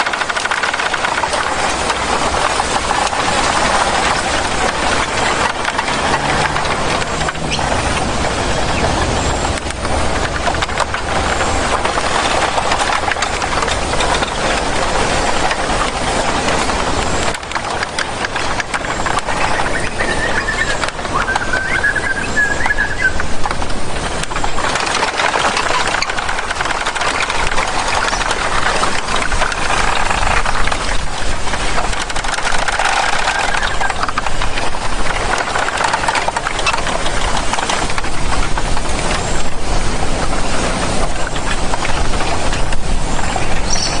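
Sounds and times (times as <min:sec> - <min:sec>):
dense rushing noise: 0:00.0 - 0:44.0
wavering whistled tone: 0:19.5 - 0:23.2.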